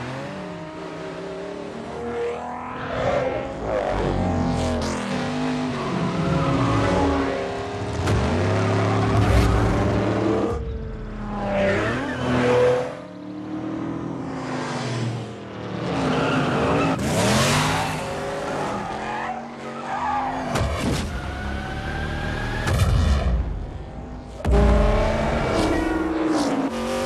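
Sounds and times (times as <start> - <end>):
car engine revving: 20.1 - 27.0.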